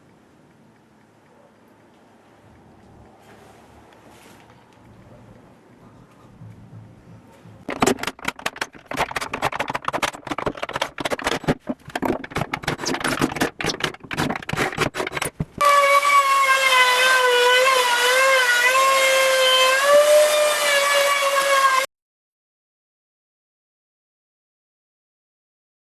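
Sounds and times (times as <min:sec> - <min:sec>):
rapid rattling and knocking: 0:07.5 - 0:15.6
power tool motor whining: 0:12.3 - 0:21.9.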